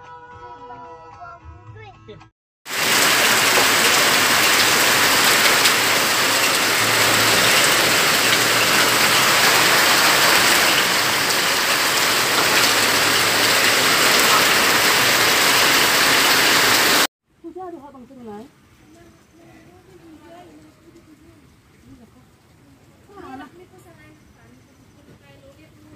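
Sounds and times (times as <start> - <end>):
heavy rain pouring: 2.7 - 17.1
sharp raindrop hits: 2.7 - 17.1.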